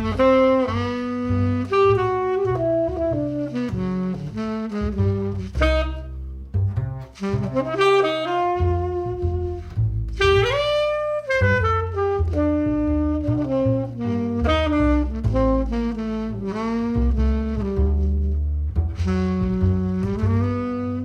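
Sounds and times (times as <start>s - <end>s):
tenor saxophone jazz melody: 0.0s - 21.0s
upright bass: 0.0s - 21.0s.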